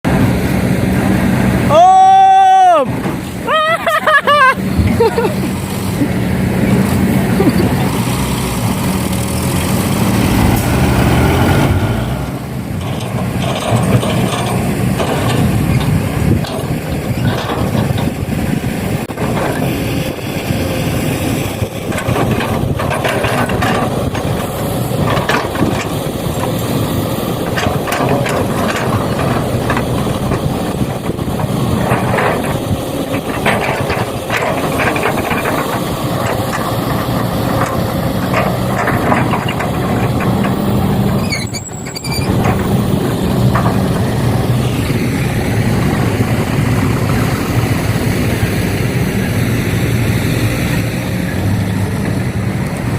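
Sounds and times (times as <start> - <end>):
heavy machinery rumbling: 0.0 - 52.9
knocks and clattering: 12.5 - 48.2.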